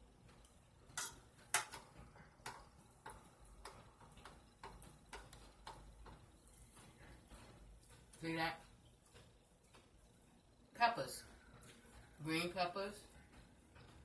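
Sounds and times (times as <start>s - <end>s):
person chewing food: 2.4s - 10.6s, 11.3s - 12.2s.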